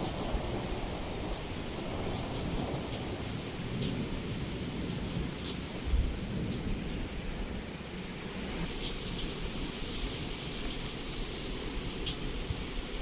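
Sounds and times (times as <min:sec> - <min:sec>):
low thunder rumble: 0:00.0 - 0:07.6
heavy rain against a window: 0:00.0 - 0:13.0.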